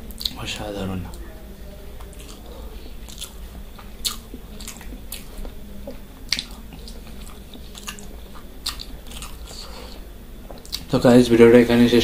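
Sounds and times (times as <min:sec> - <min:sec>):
person chewing wetly: 0:00.1 - 0:00.4, 0:02.0 - 0:10.0, 0:10.6 - 0:10.9.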